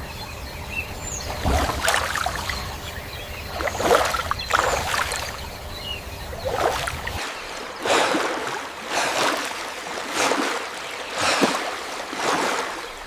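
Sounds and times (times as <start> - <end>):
water splashing and sloshing: 1.1 - 13.0
rush of moving water: 1.3 - 2.7, 3.5 - 5.5, 6.3 - 13.0.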